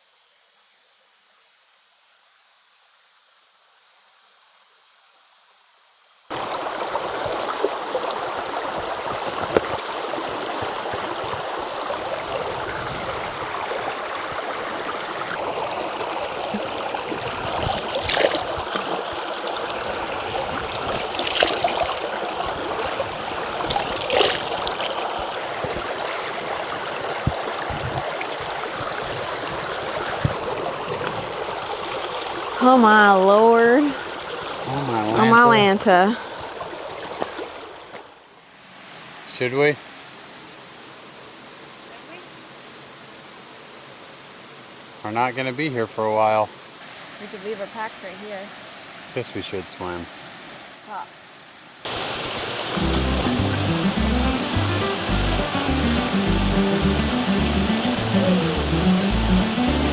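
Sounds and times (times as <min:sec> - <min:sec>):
insects droning: 0:00.0 - 0:37.2, 0:39.0 - 0:59.9
river rushing water: 0:06.3 - 0:37.9, 0:50.1 - 0:59.9
water splashes: 0:06.3 - 0:39.3, 0:51.8 - 0:59.9.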